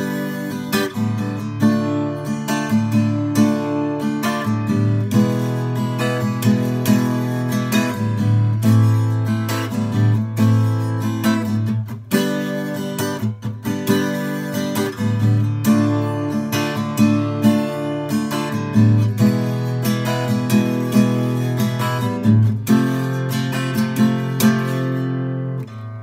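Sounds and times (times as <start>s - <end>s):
strummed acoustic guitar: 0.0s - 26.0s.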